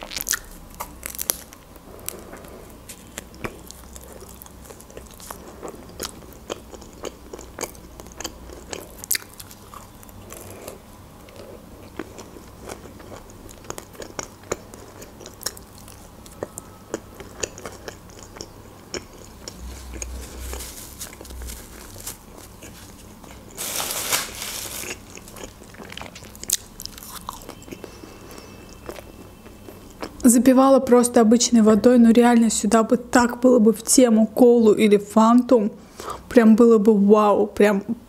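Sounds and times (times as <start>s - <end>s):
chewing with wet mouth clicks: 3.1s - 10.4s, 11.2s - 20.1s, 25.1s - 30.2s
soft crunches: 19.4s - 25.6s.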